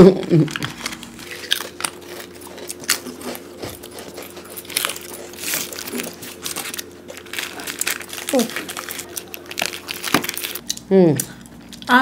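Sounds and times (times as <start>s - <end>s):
people chewing crunchy biscuits: 0.0s - 12.0s
crinkly rustles: 4.6s - 10.6s.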